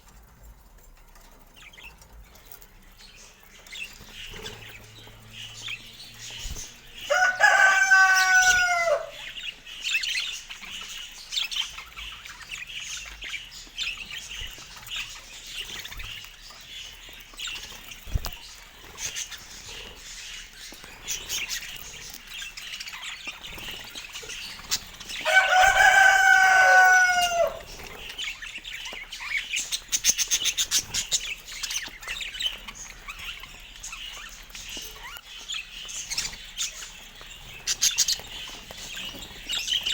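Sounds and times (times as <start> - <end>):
small birds chirping: 0.0 - 39.9
rooster crowing: 7.1 - 9.2, 25.2 - 27.7.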